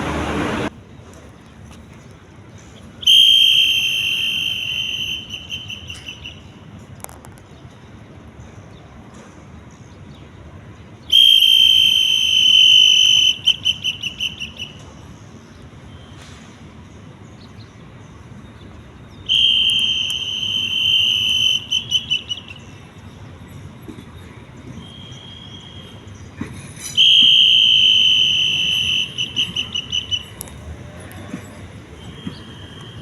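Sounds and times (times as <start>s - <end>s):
pea whistle trill: 3.0s - 6.5s, 11.1s - 14.8s, 19.3s - 22.6s, 27.0s - 30.4s.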